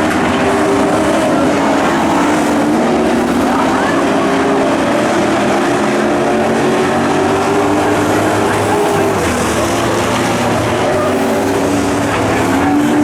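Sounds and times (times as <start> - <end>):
racing truck engines droning: 0.0 - 13.0.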